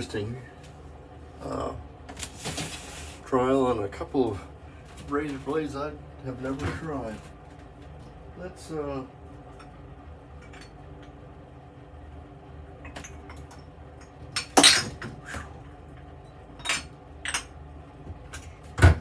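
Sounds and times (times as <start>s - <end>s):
glass bottles clinking: 14.4s - 15.1s, 16.6s - 17.5s.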